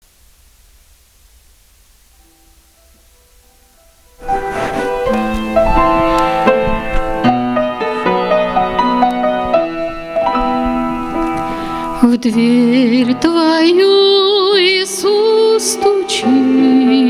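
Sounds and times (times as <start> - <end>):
keyboard playing hymn chords: 2.3 - 14.3.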